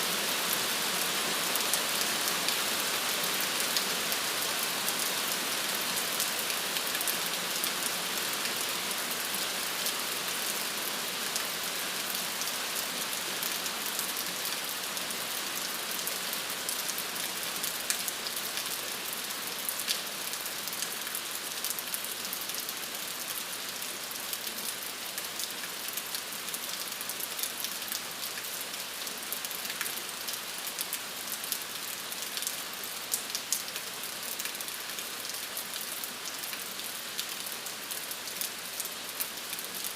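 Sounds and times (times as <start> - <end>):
steady rain falling: 0.0 - 39.9
raindrops pattering on a surface: 15.7 - 39.9.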